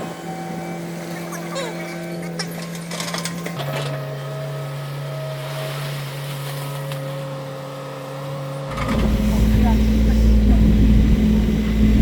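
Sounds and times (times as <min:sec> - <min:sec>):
excavator diesel engine running: 0:08.5 - 0:12.0.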